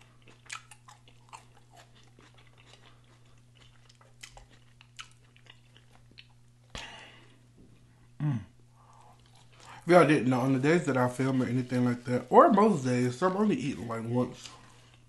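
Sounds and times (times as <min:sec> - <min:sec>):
man chewing food: 0:00.0 - 0:09.9, 0:14.4 - 0:15.0.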